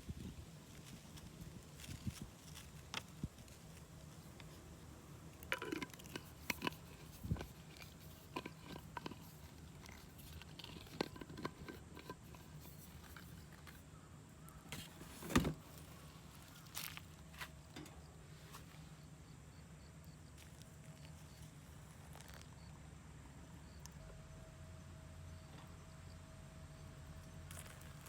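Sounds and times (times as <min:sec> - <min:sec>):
small items clicking and knocking: 0:05.3 - 0:13.8.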